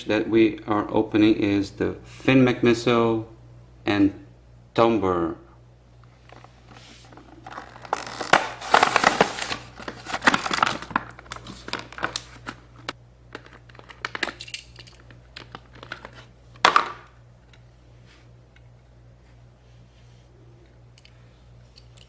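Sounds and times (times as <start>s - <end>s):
plastic packaging crinkling: 6.3s - 14.4s.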